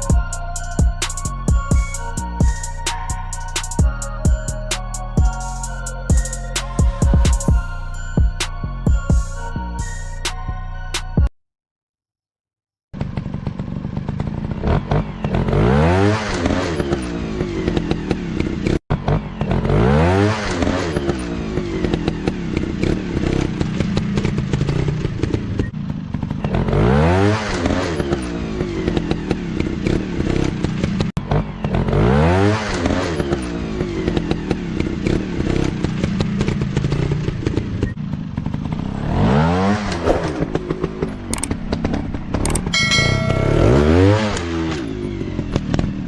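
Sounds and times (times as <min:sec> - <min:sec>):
dirt bike engines revving: 0:13.2 - 0:46.0.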